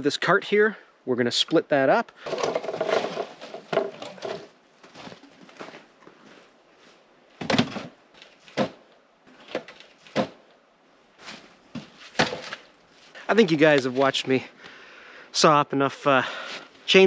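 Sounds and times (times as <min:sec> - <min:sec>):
logs scraping and rustling: 0:02.2 - 0:10.5, 0:11.2 - 0:14.4
hollow wooden knocks: 0:02.3 - 0:04.5.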